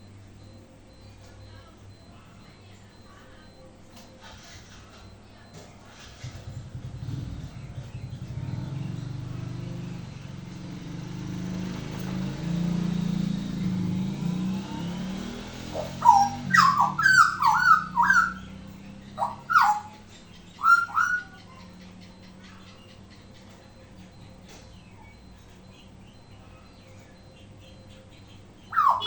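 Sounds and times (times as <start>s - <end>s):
bird whistling song: 12.5s - 29.0s.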